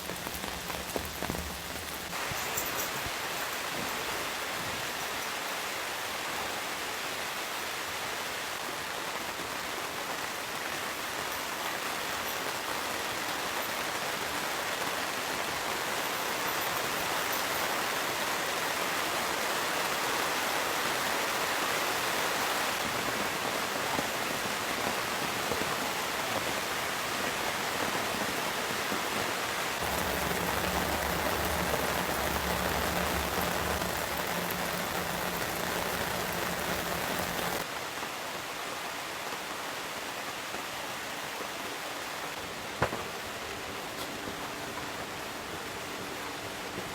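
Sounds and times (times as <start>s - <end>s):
heavy rain: 0.0s - 3.4s, 29.5s - 40.3s
low steady hum: 29.8s - 37.6s.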